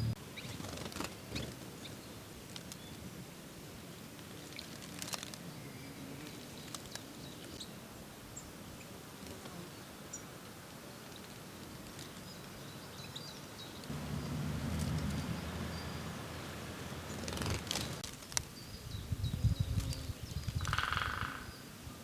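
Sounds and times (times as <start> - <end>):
outdoor background hiss: 0.0 - 22.0
songbirds chirping: 0.0 - 22.0
low rumble: 13.9 - 18.0.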